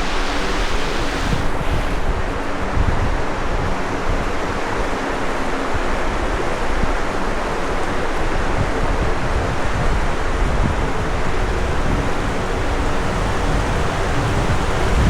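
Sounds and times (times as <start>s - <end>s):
ocean surf washing on beach: 0.0s - 2.2s, 9.4s - 15.0s
wind rumbling on microphone: 0.0s - 15.0s.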